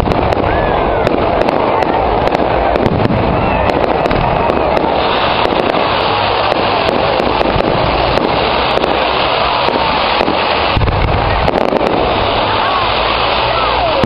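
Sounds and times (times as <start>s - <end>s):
fireworks crackling and popping: 0.0s - 14.0s
low rumble of bangs: 6.6s - 12.3s.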